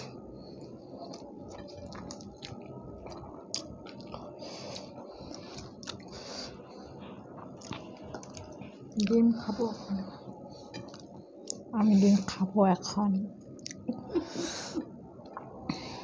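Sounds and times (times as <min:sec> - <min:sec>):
chewing and mouth smacking: 0:00.5 - 0:06.2, 0:07.4 - 0:09.2, 0:10.6 - 0:11.7, 0:13.5 - 0:13.9.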